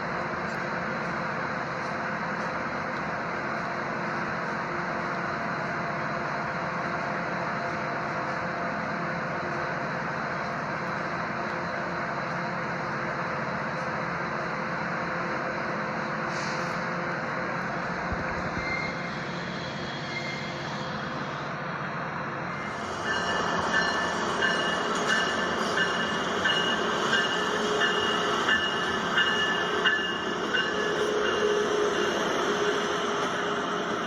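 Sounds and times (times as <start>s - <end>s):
train rumbling: 0.0s - 34.0s
high wheel squeals: 18.4s - 21.2s
wheels clacking over rail joints: 22.8s - 33.5s.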